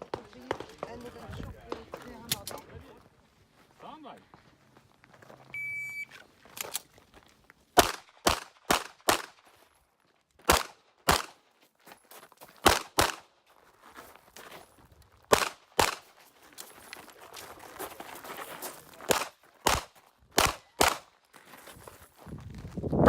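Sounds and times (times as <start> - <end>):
shot timer beep: 5.6 - 6.1
pistol shots: 7.8 - 9.4, 10.5 - 11.4, 12.6 - 13.3, 15.3 - 16.1, 19.1 - 21.1.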